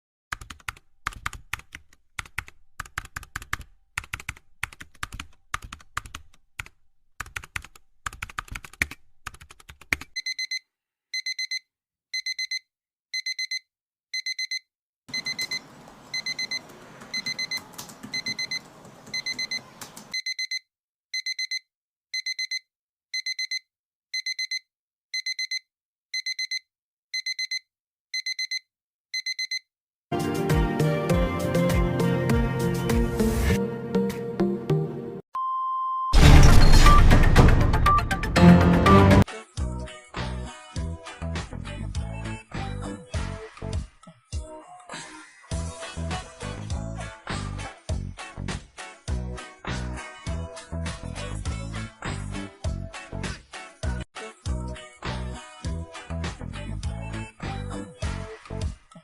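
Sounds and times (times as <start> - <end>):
keyboard typing clicks: 0.3 - 10.3, 15.1 - 20.2
electronic alarm beeping: 10.2 - 10.6, 11.2 - 11.6, 12.2 - 12.6, 13.2 - 13.6, 14.2 - 20.6, 21.2 - 21.6, 22.2 - 22.6, 23.2 - 23.6, 24.2 - 24.6, 25.2 - 25.6, 26.2 - 26.6, 27.2 - 27.6, 28.2 - 28.6, 29.2 - 29.6, 35.4 - 38.4.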